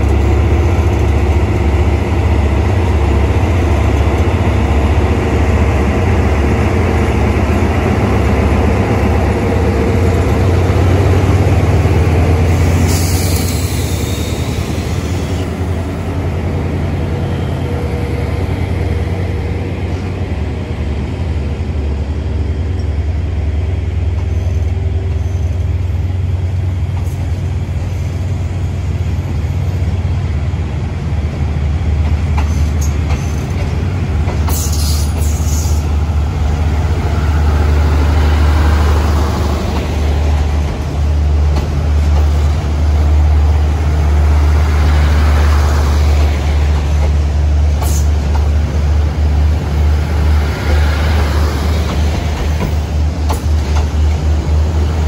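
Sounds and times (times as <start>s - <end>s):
train coaches rumbling past: 0.0s - 55.0s
train wheels squealing: 12.6s - 15.5s, 24.2s - 25.7s.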